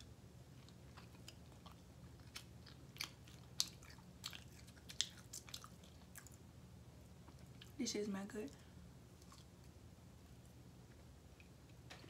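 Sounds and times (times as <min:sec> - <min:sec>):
person chewing: 0:00.0 - 0:06.4, 0:09.2 - 0:09.8.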